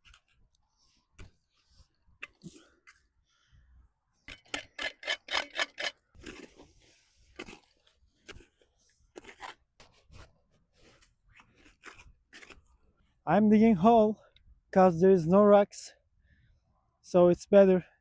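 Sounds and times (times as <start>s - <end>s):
shovel scraping and crunching earth: 4.3s - 12.9s.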